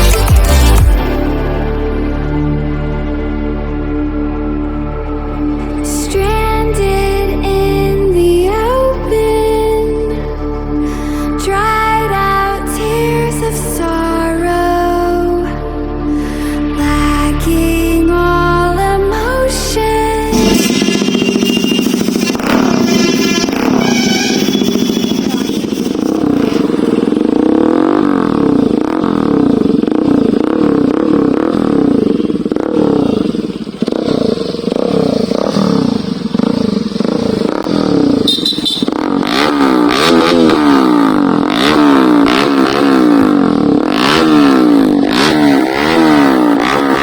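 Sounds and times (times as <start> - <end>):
motorcycle engine revving: 0.0 - 2.2, 18.4 - 47.0.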